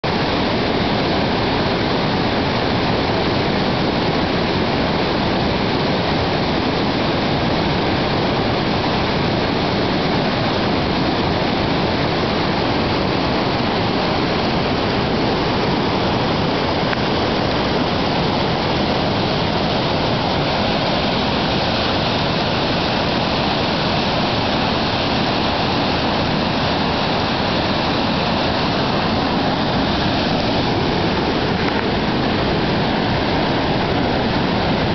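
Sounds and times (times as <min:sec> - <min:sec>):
whitewater rapids rushing: 0:00.0 - 0:34.9.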